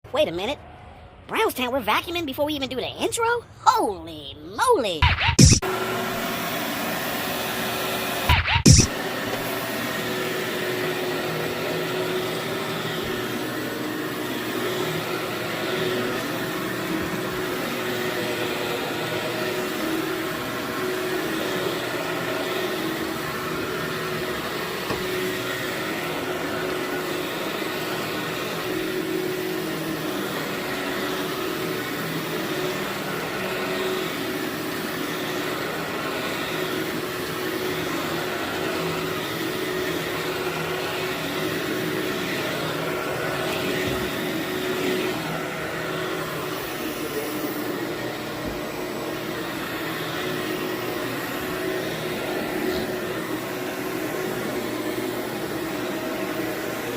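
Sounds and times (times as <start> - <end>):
vacuum cleaner running on carpet: 5.0 - 56.9.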